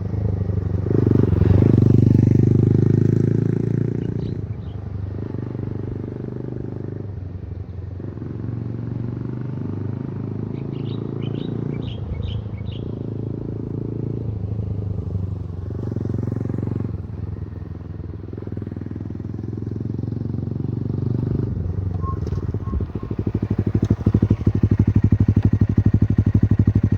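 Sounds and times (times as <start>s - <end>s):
motorcycle engine running: 0.0s - 26.9s.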